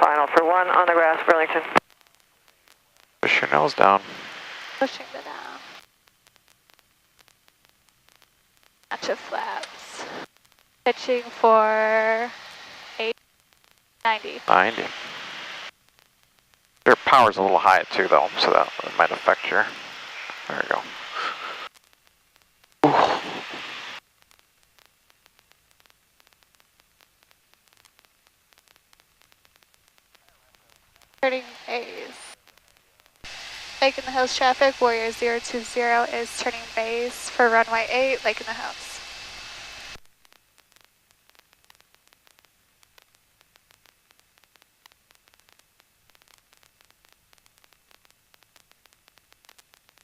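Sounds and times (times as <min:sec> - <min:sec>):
intercom static hiss: 0:00.0 - 0:50.0
faint clicks: 0:05.6 - 0:09.0, 0:23.8 - 0:31.6, 0:39.9 - 0:50.0.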